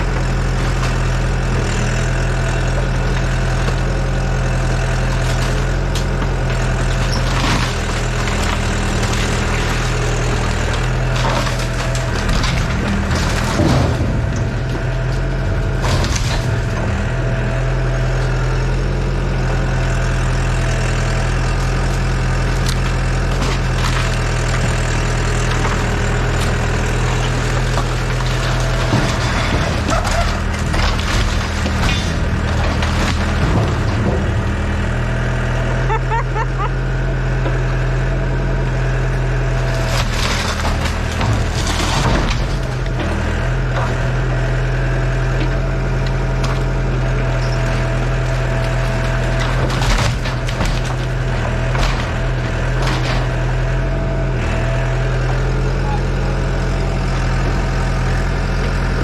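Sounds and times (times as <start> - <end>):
excavator diesel engine running: 0.0 - 59.0
wood cracking and splintering: 0.0 - 59.0.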